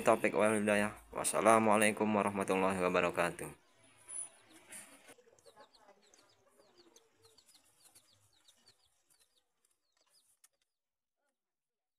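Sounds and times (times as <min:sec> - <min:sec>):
bird chirping: 0:03.6 - 0:10.5.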